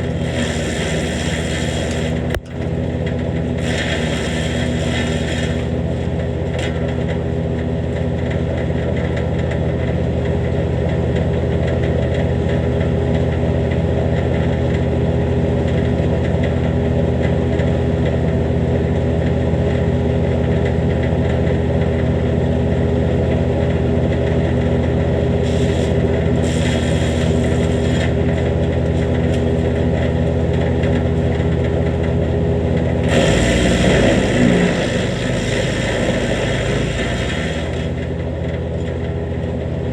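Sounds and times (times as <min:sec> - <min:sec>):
wood chipper running: 0:00.0 - 0:39.9
brush being chipped: 0:25.4 - 0:29.5.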